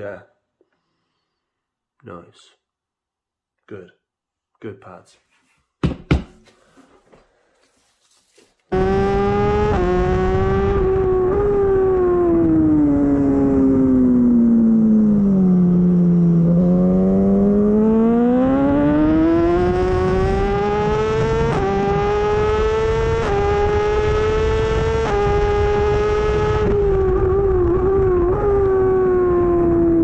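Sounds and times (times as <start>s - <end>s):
motorcycle engine revving: 8.7s - 30.0s.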